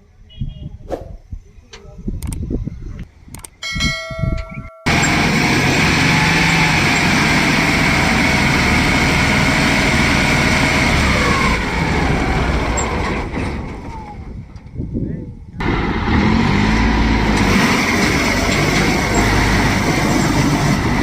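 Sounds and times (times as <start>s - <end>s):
diesel engine running loud: 4.9s - 14.6s, 15.6s - 21.0s.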